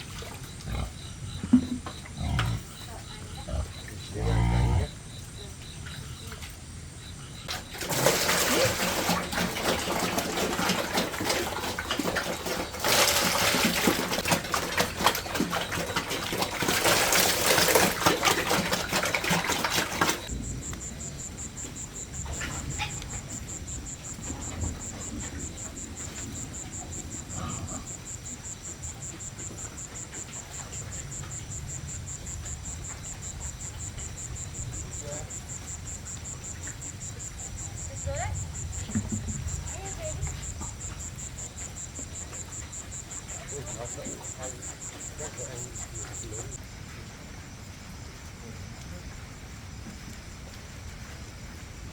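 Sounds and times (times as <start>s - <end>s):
crickets trilling: 0.0s - 51.9s
dense crackling hiss: 20.3s - 51.9s.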